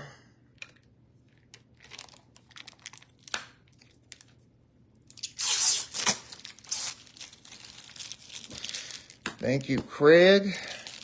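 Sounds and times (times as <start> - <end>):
papery packaging tearing: 5.1 - 9.2.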